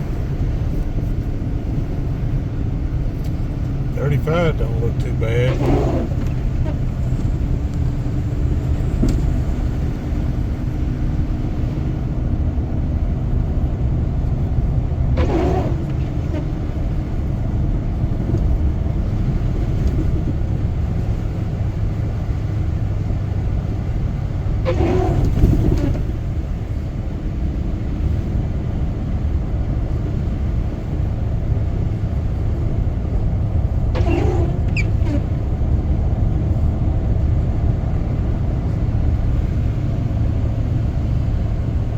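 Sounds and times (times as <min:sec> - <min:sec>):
car road and engine rumble: 0:00.0 - 0:41.9.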